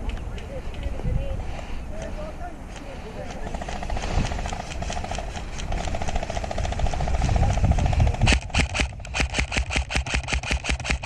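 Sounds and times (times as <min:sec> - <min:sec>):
distant rapid airsoft fire: 0:03.4 - 0:11.0
airsoft rifle full auto fire: 0:03.5 - 0:11.0.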